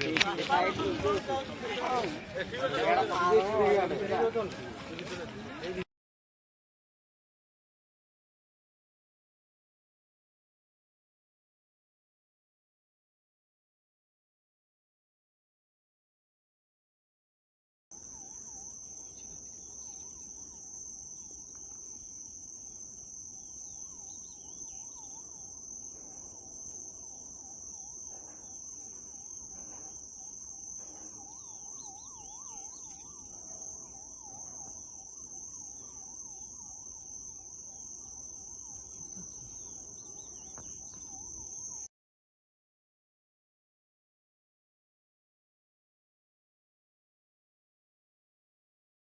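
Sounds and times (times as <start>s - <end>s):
crickets chirping: 0.0s - 5.8s, 18.0s - 41.9s.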